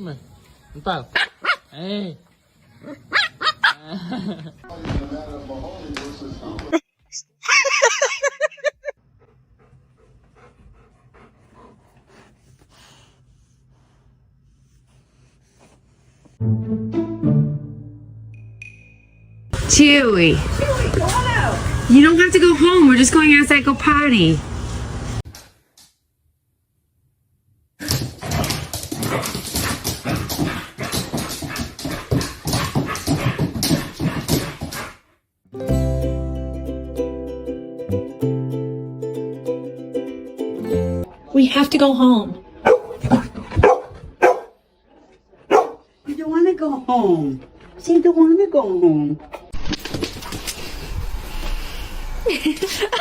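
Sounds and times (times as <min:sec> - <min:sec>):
person laughing: 0:03.7 - 0:04.6, 0:07.4 - 0:08.9, 0:52.2 - 0:53.0
dog panting: 0:09.0 - 0:16.4, 0:29.1 - 0:35.1, 0:42.6 - 0:44.5, 0:45.4 - 0:45.8
dog vocalizing rapidly: 0:42.7 - 0:44.5.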